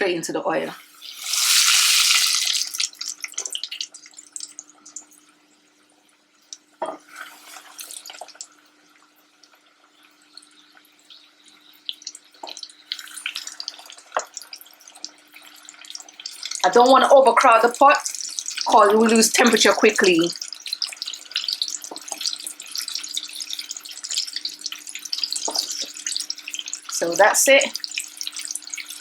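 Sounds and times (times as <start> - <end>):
chicken frying in hot oil: 0.8 - 29.0
oil crackling and spitting: 1.0 - 4.6.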